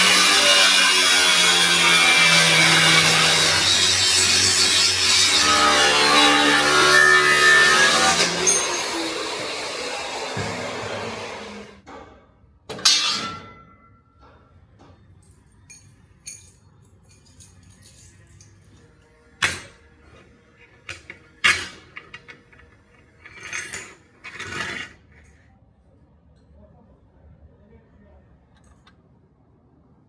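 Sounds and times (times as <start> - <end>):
metal pieces clinking on workbench: 15.3 - 18.8, 20.9 - 24.9.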